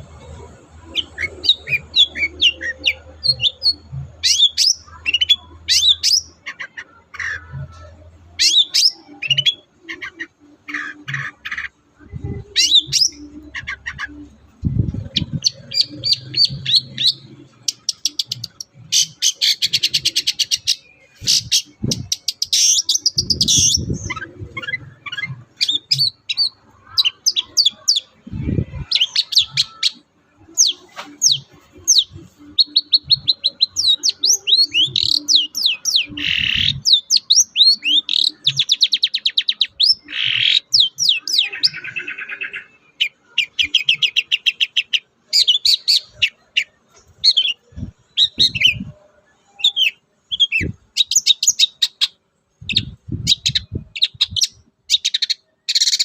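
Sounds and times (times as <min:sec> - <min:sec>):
shrike singing: 0:00.0 - 0:56.0.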